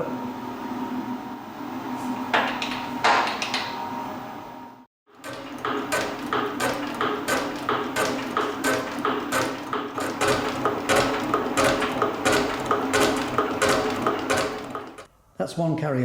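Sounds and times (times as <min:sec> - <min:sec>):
metal shaper clacking: 0:05.1 - 0:15.1.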